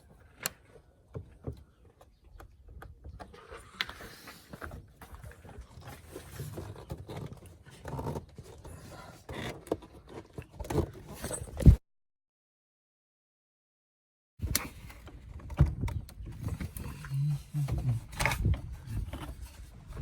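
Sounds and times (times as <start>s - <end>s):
plastic rubbing and handling: 14.4s - 20.0s.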